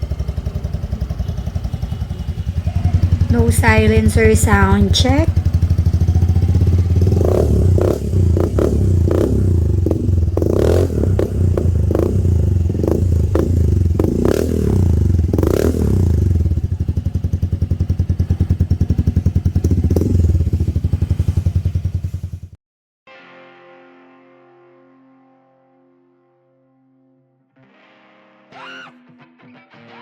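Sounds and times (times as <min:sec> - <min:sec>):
motorcycle engine idling: 0:00.0 - 0:22.6
motorcycle engine throttle blips: 0:00.0 - 0:22.6.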